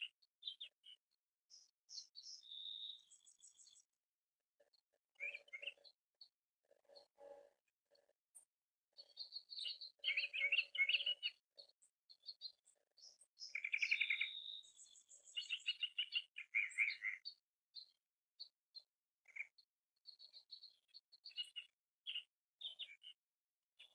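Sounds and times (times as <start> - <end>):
songbirds trilling: 9.1 - 11.4, 12.4 - 17.4.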